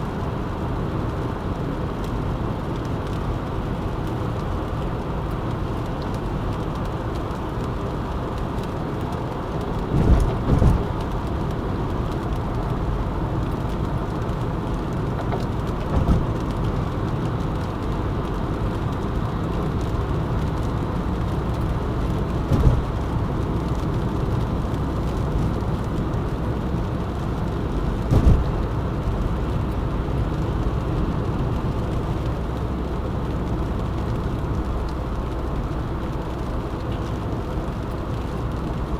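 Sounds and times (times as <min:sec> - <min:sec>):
road and tyre rumble: 0:00.0 - 0:38.9
thumps from road bumps: 0:09.8 - 0:11.3, 0:15.1 - 0:16.7, 0:22.4 - 0:23.2, 0:28.0 - 0:28.9.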